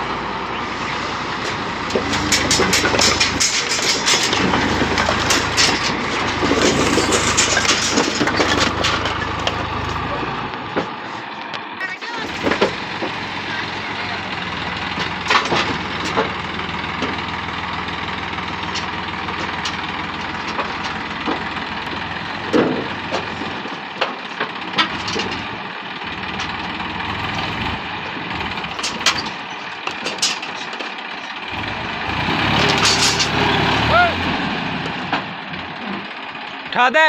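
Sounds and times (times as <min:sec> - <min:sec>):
tractor diesel engine running: 0:00.0 - 0:37.0
sharp knocks and clatter: 0:01.4 - 0:11.0, 0:12.3 - 0:13.2, 0:14.3 - 0:17.5, 0:18.2 - 0:25.6, 0:26.2 - 0:33.5.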